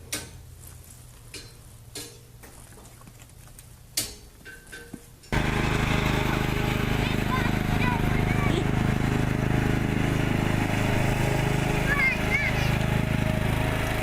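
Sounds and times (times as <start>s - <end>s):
loud motor-like drone: 5.4s - 14.0s.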